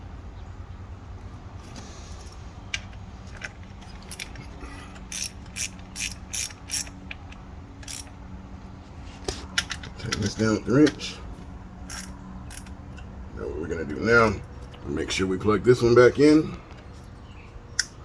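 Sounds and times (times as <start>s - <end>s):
ratchet wrench clicking: 2.2s - 8.2s, 11.9s - 12.8s.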